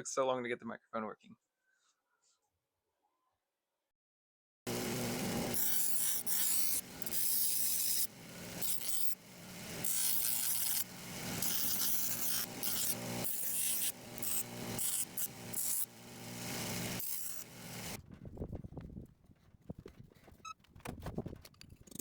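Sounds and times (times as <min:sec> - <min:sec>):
tool rasping a workpiece: 0:04.7 - 0:18.0.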